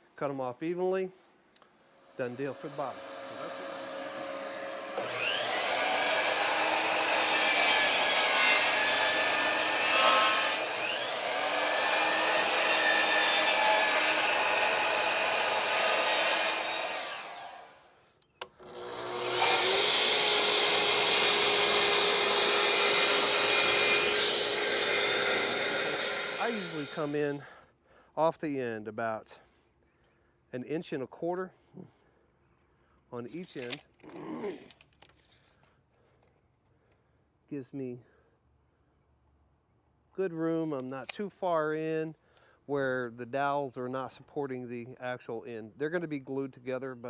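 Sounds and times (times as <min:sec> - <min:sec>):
electric saw cutting wood: 0:02.0 - 0:27.4.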